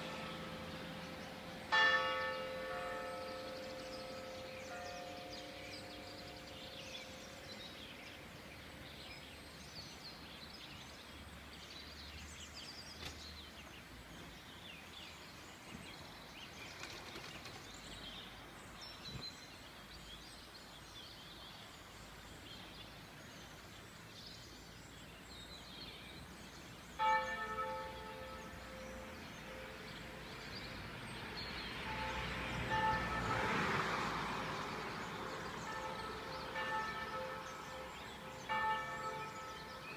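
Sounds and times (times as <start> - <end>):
church bell ringing: 0.0 - 7.9, 27.0 - 39.9.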